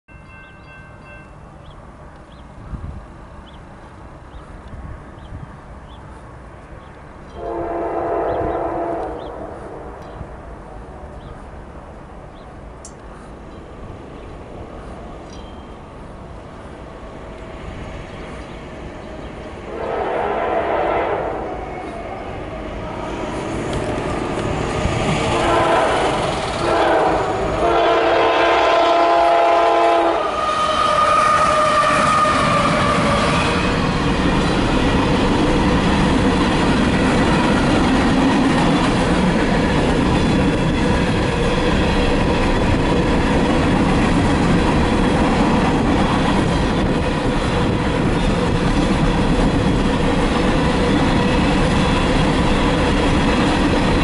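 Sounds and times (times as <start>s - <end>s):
freight train rumbling past: 0.1s - 54.0s
locomotive horn blasts: 7.3s - 10.0s, 19.7s - 21.6s, 25.3s - 33.4s.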